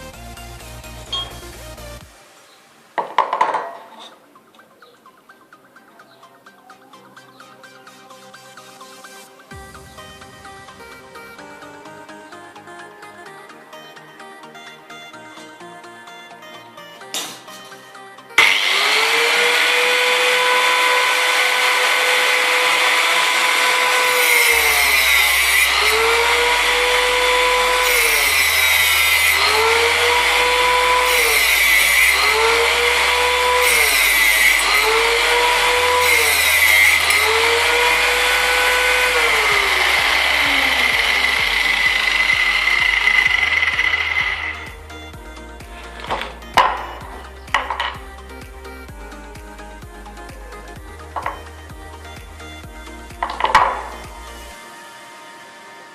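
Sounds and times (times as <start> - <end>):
angle grinder cutting: 16.5 - 49.4, 50.1 - 55.9.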